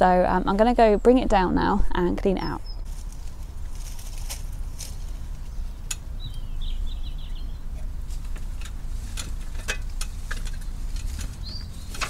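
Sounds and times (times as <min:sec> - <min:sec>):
steady low rumble: 0:00.0 - 0:12.0
songbird warbling trill: 0:02.2 - 0:02.9, 0:05.4 - 0:07.8, 0:10.6 - 0:12.0.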